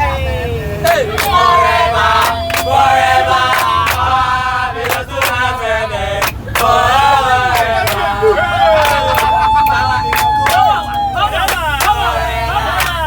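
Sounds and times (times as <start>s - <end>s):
voices singing in chorus: 0.0s - 13.0s
sharp hand claps: 0.9s - 1.4s, 2.2s - 2.7s, 3.5s - 4.1s, 4.8s - 5.4s, 8.8s - 10.6s, 12.8s - 13.0s.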